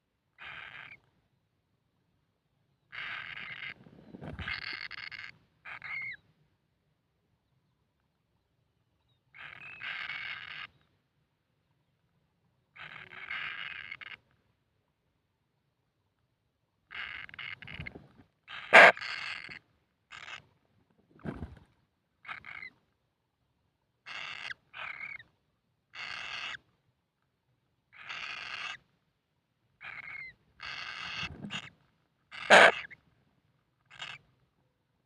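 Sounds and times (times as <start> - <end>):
bird chick harsh rasping calls: 18.7 - 18.9, 32.4 - 32.9.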